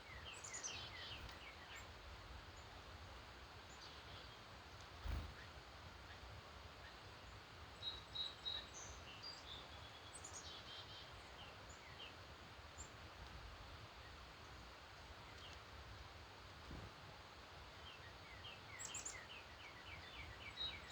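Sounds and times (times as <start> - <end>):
small birds chirping: 0.0 - 2.8, 6.8 - 12.2, 14.0 - 15.7, 17.8 - 20.9.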